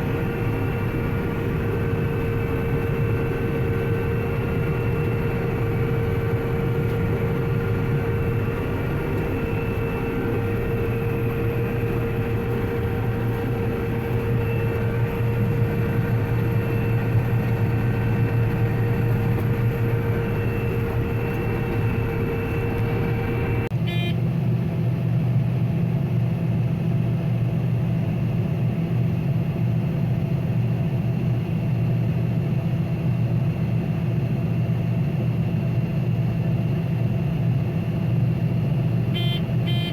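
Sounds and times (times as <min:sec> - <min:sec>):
deeper machine hum: 0:00.0 - 0:24.2
combine harvester engine drone: 0:00.0 - 0:39.9.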